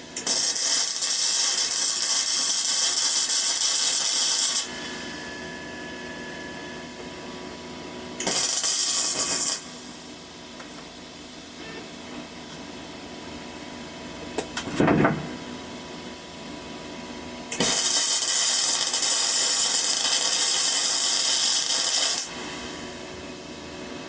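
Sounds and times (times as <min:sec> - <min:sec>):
welding arc crackling and hissing: 0:00.1 - 0:04.9, 0:08.2 - 0:10.8, 0:17.5 - 0:22.9.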